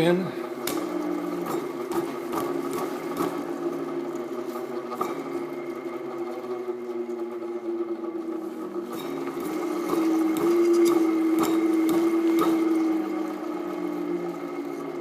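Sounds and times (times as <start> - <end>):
electric motor humming: 0.0 - 15.0.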